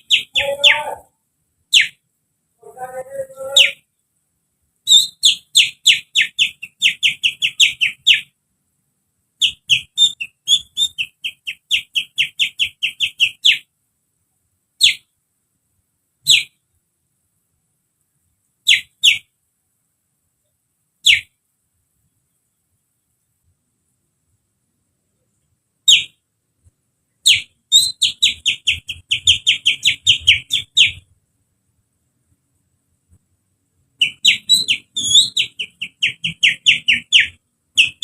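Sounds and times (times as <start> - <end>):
finger whistling bird call: 9.4 - 11.1, 34.0 - 38.0.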